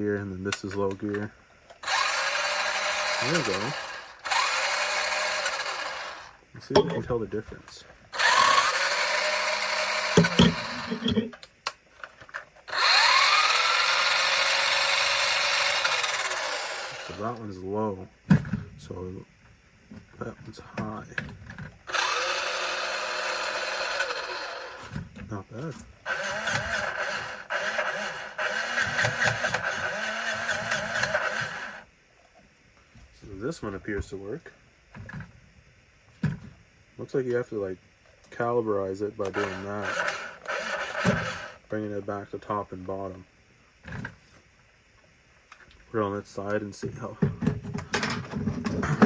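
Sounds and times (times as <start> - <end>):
rc car motor whirring: 1.7 - 6.4, 8.1 - 11.3, 12.3 - 17.4, 21.8 - 25.0, 26.0 - 31.9, 39.2 - 41.7.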